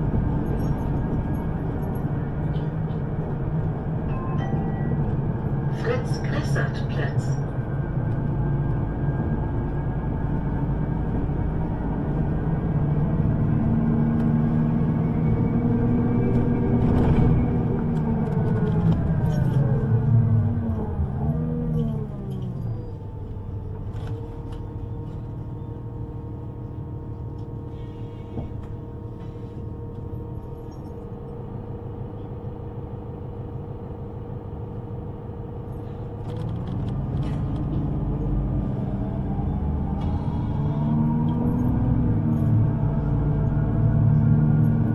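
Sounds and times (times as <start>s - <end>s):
train standing hum: 0.0s - 14.6s
heavy rumble: 0.0s - 30.8s, 31.4s - 44.9s.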